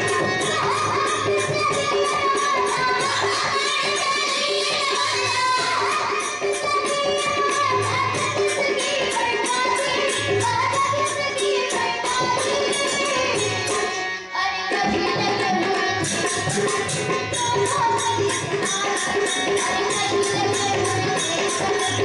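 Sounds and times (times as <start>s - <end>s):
girls singing devotional song: 0.0s - 22.0s
tabla and percussion: 0.0s - 22.0s.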